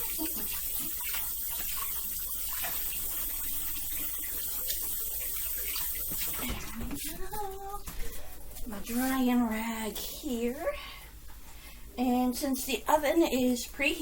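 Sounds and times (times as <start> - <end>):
faucet running: 0.0 - 7.9
hands washing splashes: 0.0 - 9.1.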